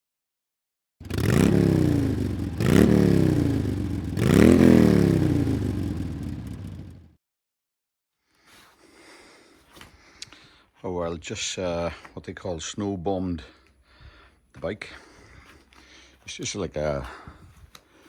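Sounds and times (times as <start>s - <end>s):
motorcycle engine revving: 1.0s - 7.1s.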